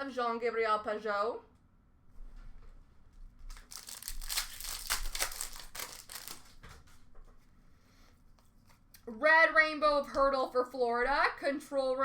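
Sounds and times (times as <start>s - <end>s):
foil wrapper crinkling: 3.5s - 6.6s.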